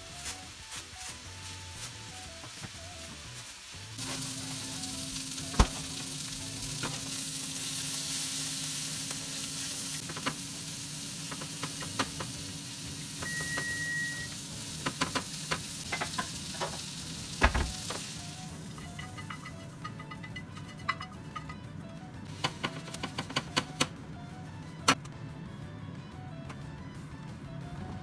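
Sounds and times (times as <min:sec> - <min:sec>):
food sizzling in a frying pan: 0:00.0 - 0:20.9
short steady beep: 0:13.2 - 0:14.3.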